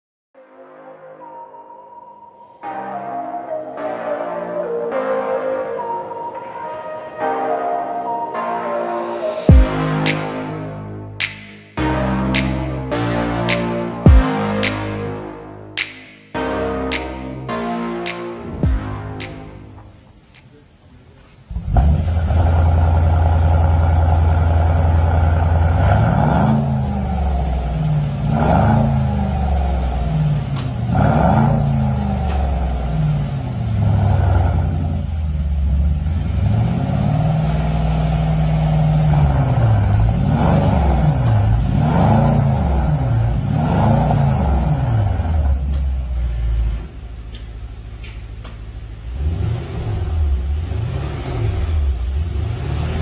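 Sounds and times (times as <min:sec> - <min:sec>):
car engine idling: 0:19.8 - 0:53.0
car engine revving: 0:21.5 - 0:53.0.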